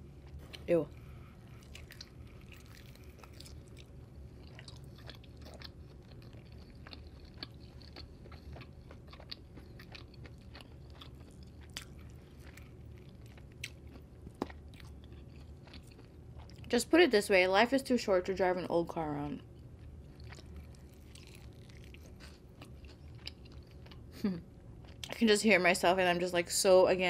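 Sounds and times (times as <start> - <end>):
chewing and biting: 0.0 - 16.7, 19.4 - 25.2.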